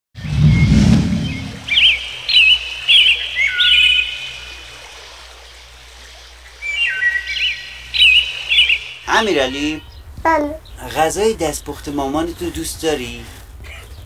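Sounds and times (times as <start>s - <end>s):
low rumble: 0.2s - 1.8s
bird chirps and whistles: 0.2s - 4.1s.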